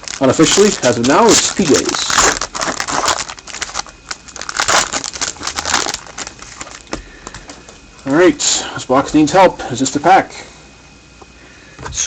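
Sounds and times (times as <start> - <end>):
wrappers crinkling: 0.0 - 8.2.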